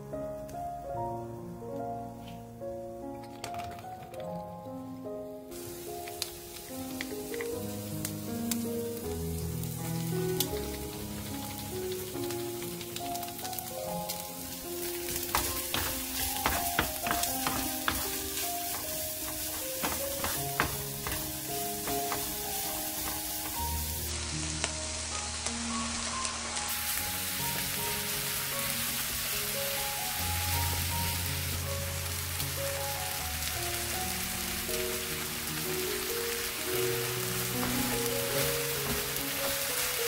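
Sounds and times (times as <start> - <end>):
background music with simple melody: 0.0 - 40.0
meat and onions sizzling: 3.4 - 40.0
utensils clicking against pan: 12.3 - 24.0.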